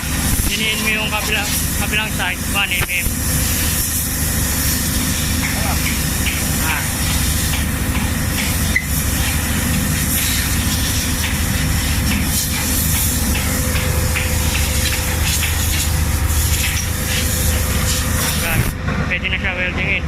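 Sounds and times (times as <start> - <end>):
heavy machinery droning with hiss: 0.0 - 20.0.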